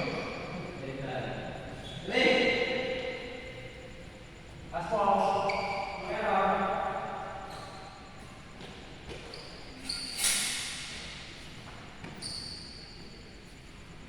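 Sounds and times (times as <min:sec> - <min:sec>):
shoes squeaking on floor: 0:05.0 - 0:06.3, 0:07.3 - 0:13.7.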